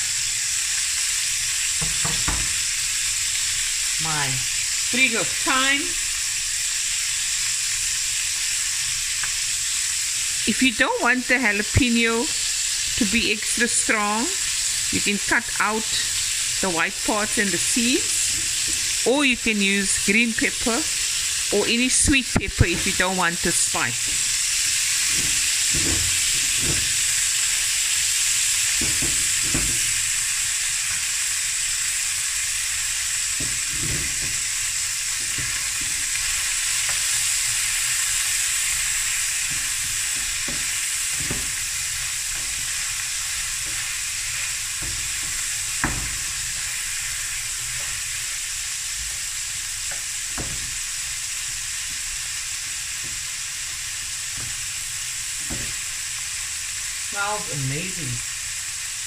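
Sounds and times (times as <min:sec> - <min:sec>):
sausage sizzling in a pan: 0:00.0 - 0:59.0
wooden spatula knocking pan: 0:01.8 - 0:02.6, 0:25.0 - 0:27.2, 0:28.8 - 0:29.9, 0:39.5 - 0:41.7, 0:49.9 - 0:50.8.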